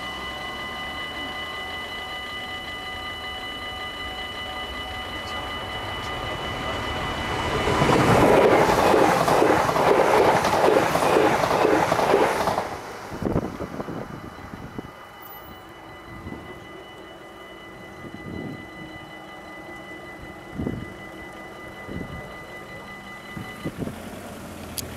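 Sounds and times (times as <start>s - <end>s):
crossing bells ringing: 0.0s - 24.9s
train wheels clattering: 7.3s - 13.6s.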